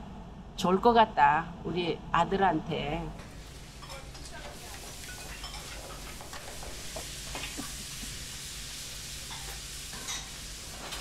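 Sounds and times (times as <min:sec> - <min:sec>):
food sizzling in hot oil: 0:03.3 - 0:11.0.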